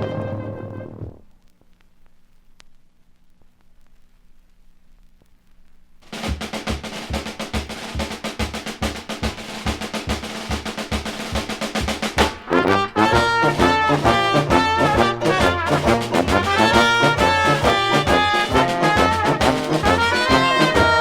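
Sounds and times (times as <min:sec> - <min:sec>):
brass instruments playing jazz: 0:00.0 - 0:01.2, 0:09.0 - 0:21.0
drum beat: 0:06.0 - 0:21.0.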